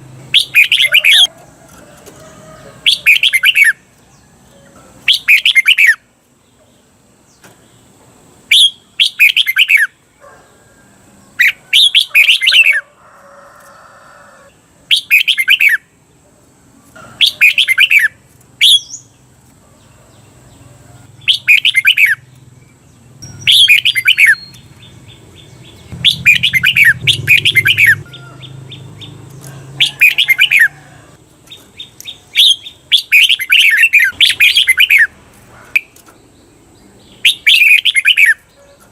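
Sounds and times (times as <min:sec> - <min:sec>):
bulbul singing whistled phrases: 0:00.3 - 0:01.3, 0:02.9 - 0:03.9, 0:05.1 - 0:06.1, 0:08.5 - 0:10.0, 0:11.4 - 0:12.8, 0:14.9 - 0:15.9, 0:17.2 - 0:19.1, 0:21.2 - 0:22.3, 0:23.2 - 0:29.1, 0:31.5 - 0:35.1, 0:37.1 - 0:38.6.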